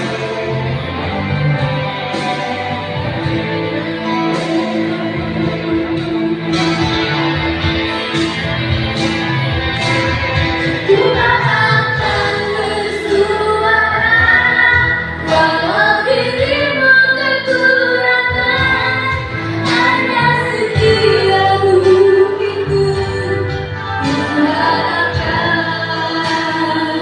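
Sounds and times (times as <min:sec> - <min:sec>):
band accompaniment: 0:00.0 - 0:27.0
woman singing a pop song: 0:10.8 - 0:27.0.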